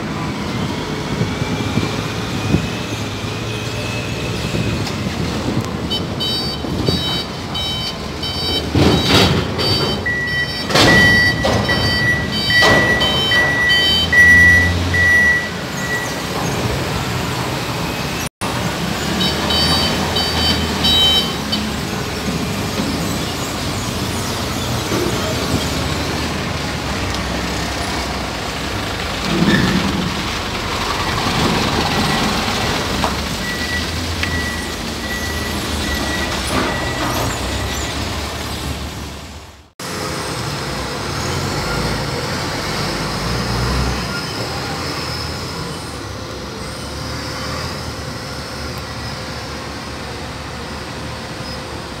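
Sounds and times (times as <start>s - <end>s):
heavy vehicles running: 0.0s - 52.0s
reversing alarm beeping: 6.2s - 16.3s, 33.4s - 38.0s.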